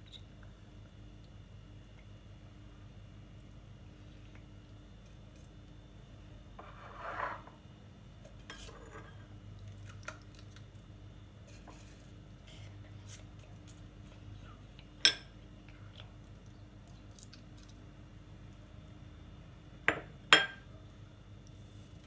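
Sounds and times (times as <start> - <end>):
tableware clinking: 8.5 - 9.3, 19.9 - 20.6.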